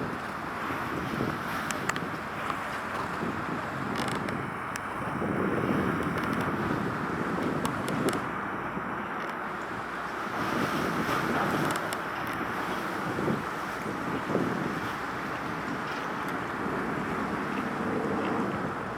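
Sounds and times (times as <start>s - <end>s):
wind buffeting microphone: 0.0s - 18.9s
faint clicks: 6.0s - 6.6s, 7.4s - 8.3s, 11.6s - 12.4s.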